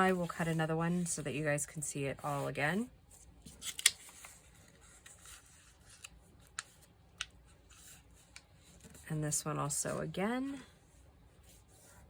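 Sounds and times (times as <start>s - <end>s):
paper rustling: 3.2s - 6.9s.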